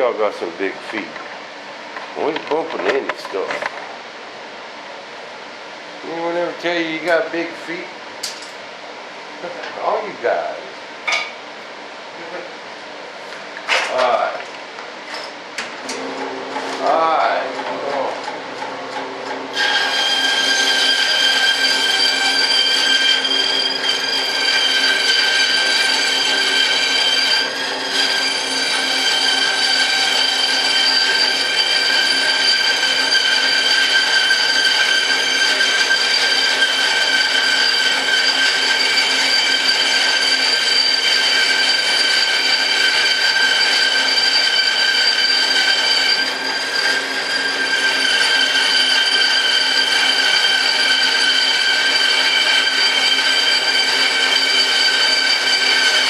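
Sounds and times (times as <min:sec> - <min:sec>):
bandsaw whining: 0:19.5 - 0:56.0.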